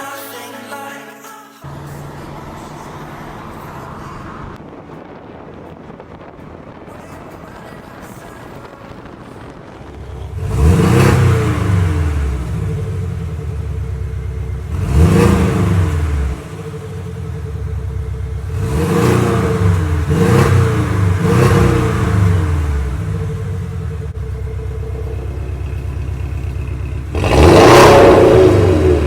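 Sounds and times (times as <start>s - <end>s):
sports car engine idling and revving: 9.7s - 29.0s.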